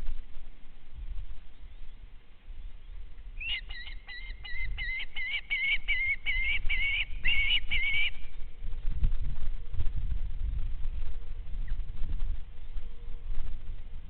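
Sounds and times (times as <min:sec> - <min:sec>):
low rumble: 0:08.2 - 0:14.0.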